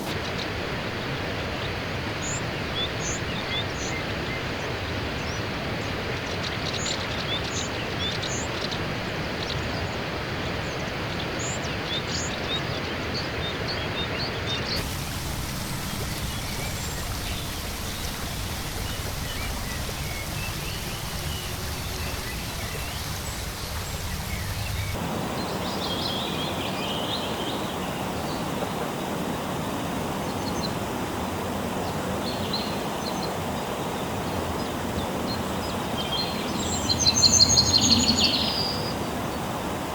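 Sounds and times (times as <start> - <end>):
steady rushing noise: 14.8 - 26.7.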